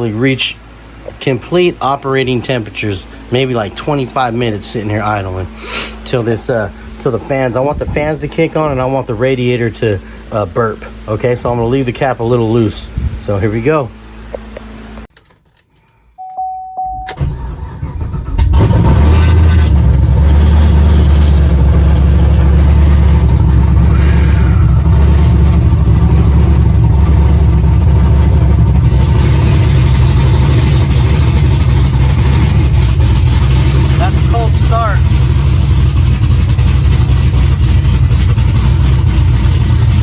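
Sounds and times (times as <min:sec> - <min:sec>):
loud choppy engine idle: 0:00.0 - 0:14.2, 0:18.6 - 0:40.0
short beep: 0:16.2 - 0:17.2
engine cranking: 0:17.2 - 0:40.0.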